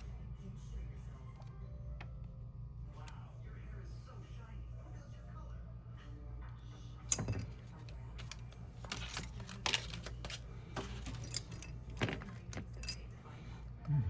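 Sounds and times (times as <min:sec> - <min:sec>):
steady low hum: 0:00.0 - 0:14.0
small metal tools clicking: 0:10.8 - 0:13.0.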